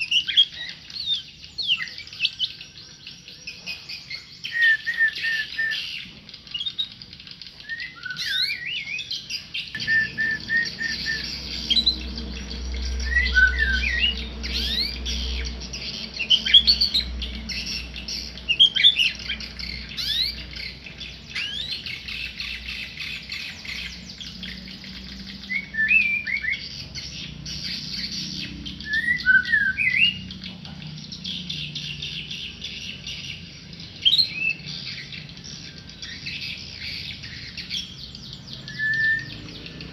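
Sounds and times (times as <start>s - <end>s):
bird whistling and chirping: 0.0s - 39.9s.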